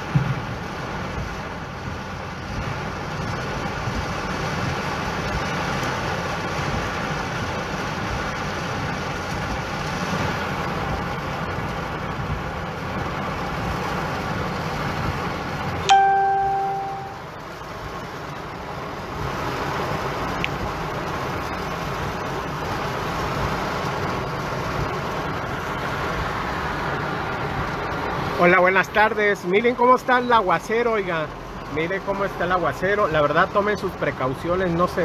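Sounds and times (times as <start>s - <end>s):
heavy rain on a car: 0.0s - 35.0s
sharp pitched ding: 15.9s - 17.2s.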